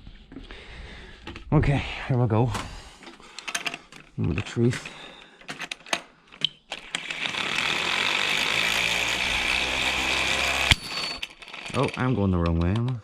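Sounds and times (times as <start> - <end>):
tool clicking: 5.5 - 13.0
power tool running: 6.7 - 12.0.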